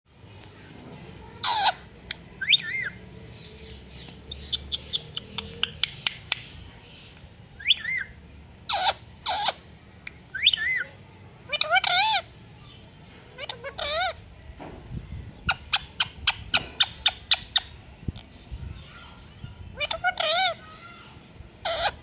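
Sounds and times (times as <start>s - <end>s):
parrot squawks: 1.4s - 3.0s, 7.6s - 8.1s, 8.7s - 9.6s, 10.3s - 10.9s, 11.5s - 12.3s, 19.8s - 20.7s, 21.6s - 22.0s
parrot whistled calls: 2.4s - 3.0s, 7.6s - 9.6s, 10.3s - 10.9s.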